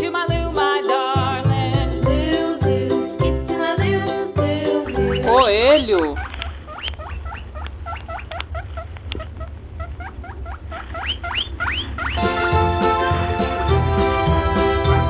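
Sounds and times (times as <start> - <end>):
children's music: 0.0 - 6.2, 12.2 - 15.0.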